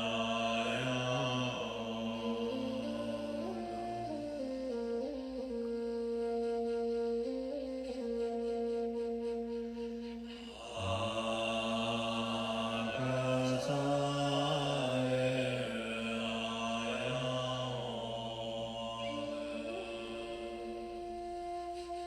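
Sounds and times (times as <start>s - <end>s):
man chanting: 0.0s - 5.6s, 10.4s - 22.0s
sustained flute-like tone: 0.0s - 22.0s.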